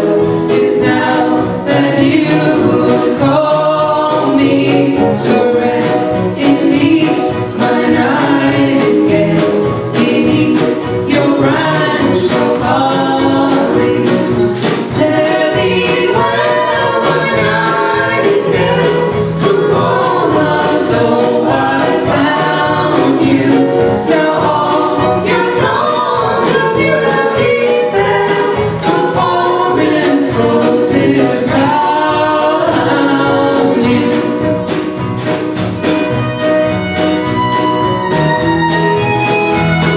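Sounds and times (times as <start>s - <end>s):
choir singing a cappella: 0.0s - 35.6s.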